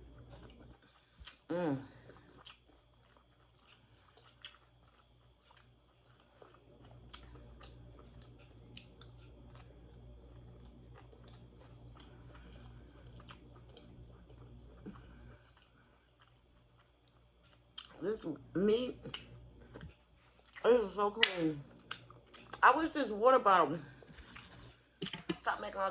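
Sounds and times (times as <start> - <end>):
chewing crispy fried fish: 0.0 - 18.4
low steady hum: 0.0 - 25.9.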